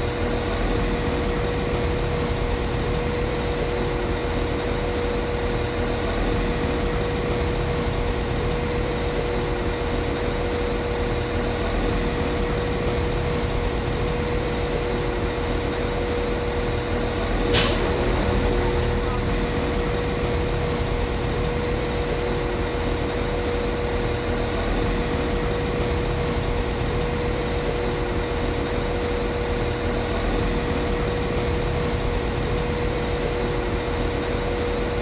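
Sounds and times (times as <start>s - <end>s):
steady hum: 0.0s - 35.0s
short sharp click: 17.5s - 17.9s.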